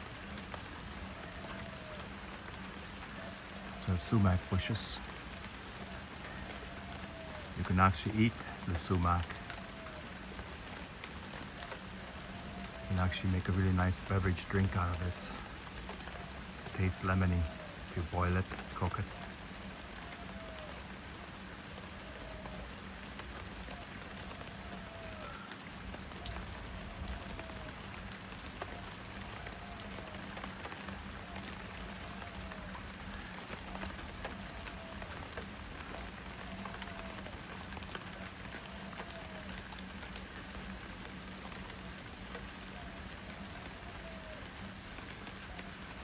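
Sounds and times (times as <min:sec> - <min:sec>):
rain pattering on plants: 0:00.0 - 0:46.0.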